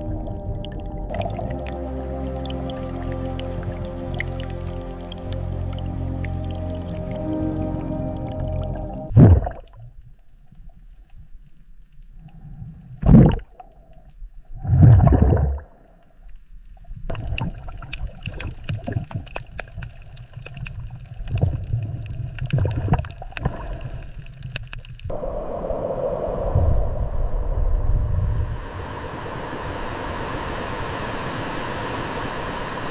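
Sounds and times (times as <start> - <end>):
water gurgling and bubbling: 0.0 - 9.9, 13.0 - 13.7, 14.6 - 15.8, 17.1 - 24.5.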